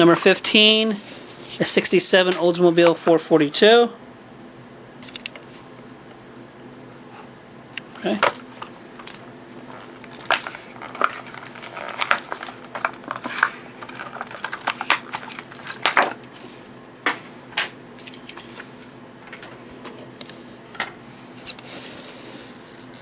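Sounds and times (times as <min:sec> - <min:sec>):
plastic packaging torn open: 0:09.7 - 0:16.2.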